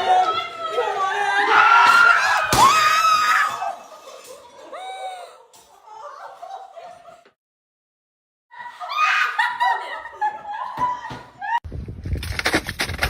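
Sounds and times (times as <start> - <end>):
people laughing loudly: 3.4 - 7.4, 8.6 - 11.6.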